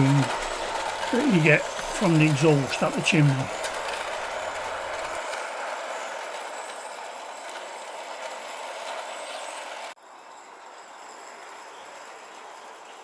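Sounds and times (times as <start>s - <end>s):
model steam locomotive hissing: 0.0s - 5.2s.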